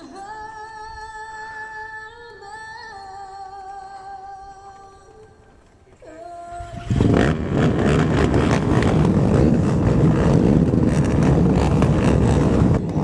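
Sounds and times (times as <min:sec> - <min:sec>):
quad engines running: 0:06.5 - 0:13.0
dense rushing noise: 0:06.7 - 0:13.0.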